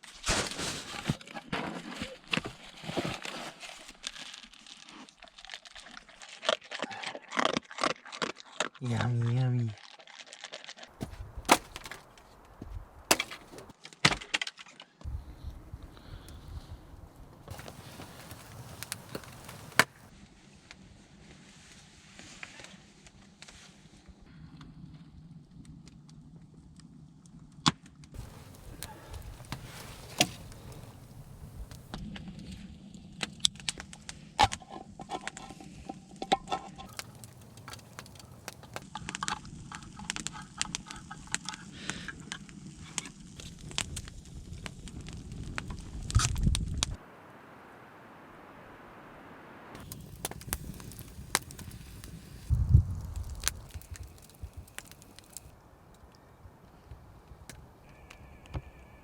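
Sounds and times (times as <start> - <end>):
wood cracking and splintering: 9.8 - 12.4, 13.1 - 14.8, 17.5 - 20.1, 28.2 - 32.0, 36.9 - 39.4, 49.8 - 55.6
rustling: 10.9 - 13.7, 17.5 - 20.1, 28.2 - 31.9, 36.8 - 38.8, 49.8 - 55.6
steady low rumble: 49.8 - 54.8.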